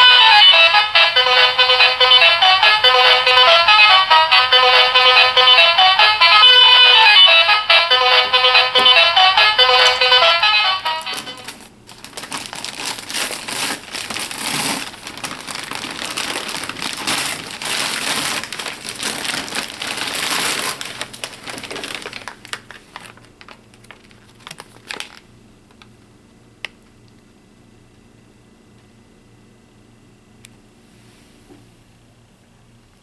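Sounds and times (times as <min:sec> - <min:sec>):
wrapper crinkling: 0:11.1 - 0:25.9.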